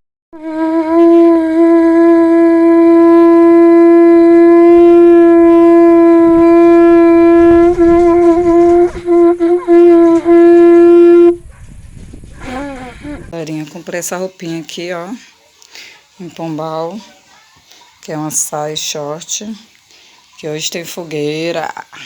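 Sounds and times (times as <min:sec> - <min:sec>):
horn blowing long note: 0:00.4 - 0:11.6.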